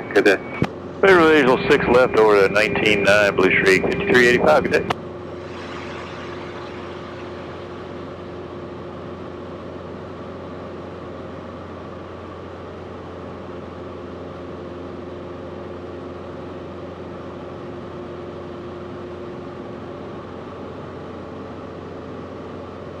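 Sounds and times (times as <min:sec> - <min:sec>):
airplane engine droning: 0:00.0 - 0:10.2.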